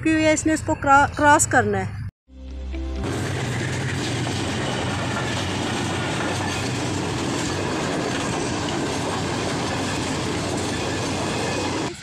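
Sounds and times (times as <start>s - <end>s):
train wheels rumbling on rails: 3.0s - 12.0s.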